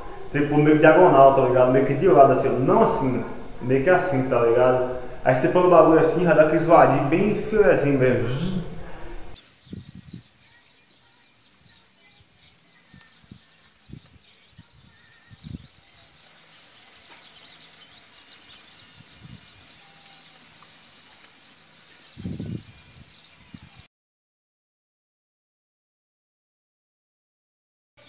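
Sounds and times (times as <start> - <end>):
small birds chirping: 9.3 - 23.9.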